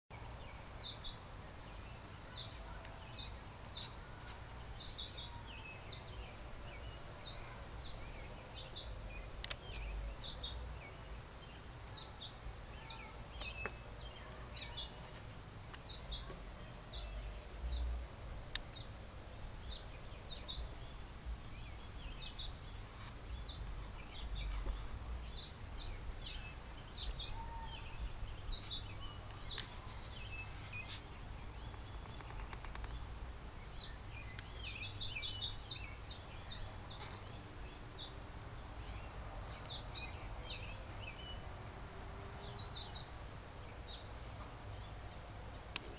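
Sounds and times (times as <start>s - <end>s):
birds chirping: 0.1s - 45.9s
sharp clicks: 31.7s - 33.1s.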